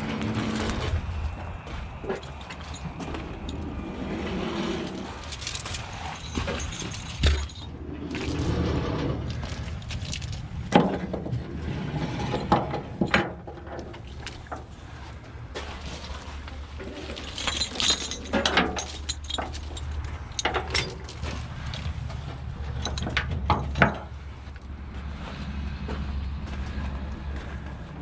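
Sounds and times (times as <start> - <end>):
engine running: 0.0 - 13.3, 14.1 - 28.0
metal chains clanking: 2.0 - 11.1, 16.8 - 24.2.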